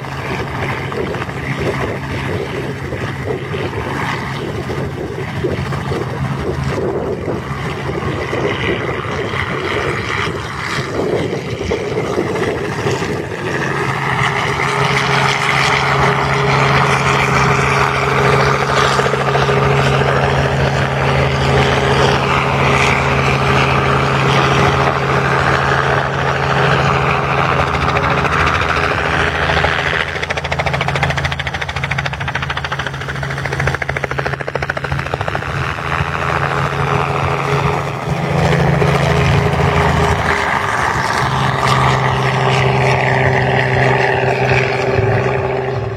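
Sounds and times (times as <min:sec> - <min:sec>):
engine humming with rushing noise: 0:00.0 - 0:45.9.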